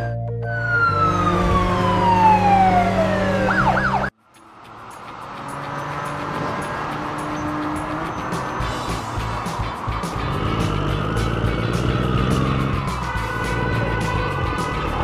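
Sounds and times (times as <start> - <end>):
siren-like tone sliding down: 0.5 - 4.1.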